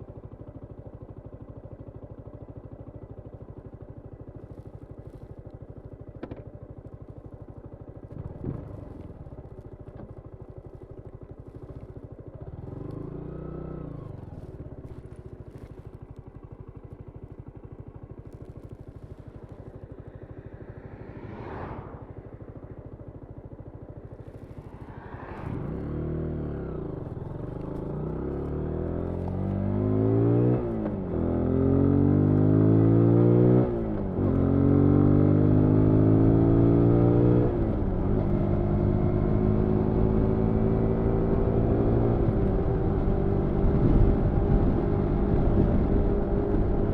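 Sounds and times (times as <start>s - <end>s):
motorcycle pulling away: 11.4s - 16.0s, 18.2s - 46.9s.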